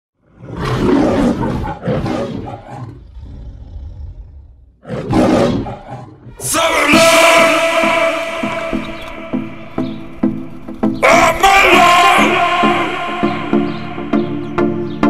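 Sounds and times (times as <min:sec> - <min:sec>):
music: 0:06.3 - 0:15.0.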